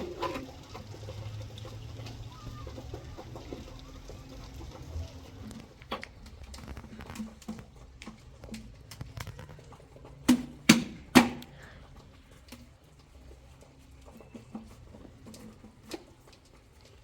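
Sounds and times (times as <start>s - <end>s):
loud sharp knocks: 10.3s - 11.5s.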